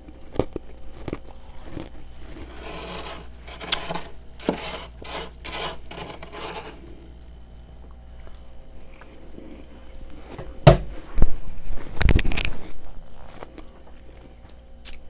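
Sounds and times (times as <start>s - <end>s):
frost scraping: 2.2s - 6.8s.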